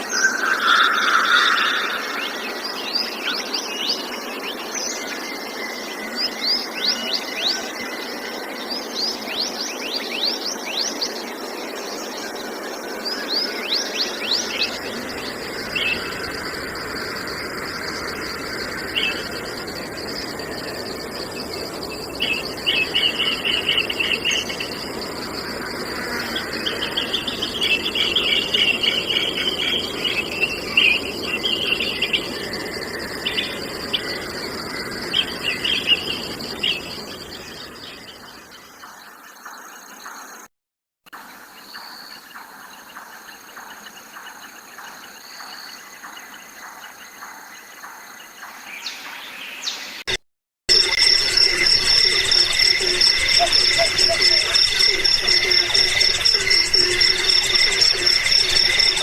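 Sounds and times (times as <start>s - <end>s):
wild birds calling: 0.0s - 4.2s, 12.0s - 39.6s, 50.7s - 59.0s
crickets trilling: 0.0s - 40.5s, 50.1s - 59.0s.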